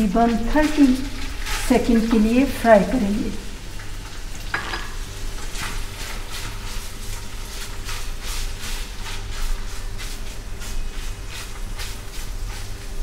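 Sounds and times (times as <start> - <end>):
spatula stirring in wok: 0.0 - 2.7, 5.3 - 13.0
chicken sizzling in oil: 0.0 - 13.0.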